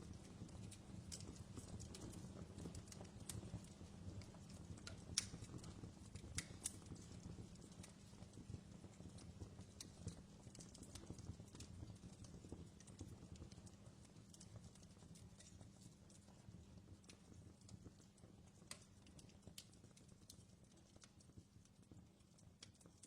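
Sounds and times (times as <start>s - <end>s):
faint crackling wood fire: 0.0s - 23.0s.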